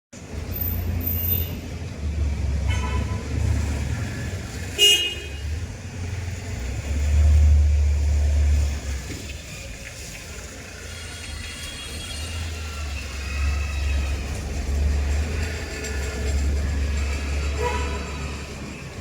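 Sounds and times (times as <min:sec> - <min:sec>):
road traffic rumble: 0:00.1 - 0:19.0
car horn toot: 0:04.8 - 0:05.5.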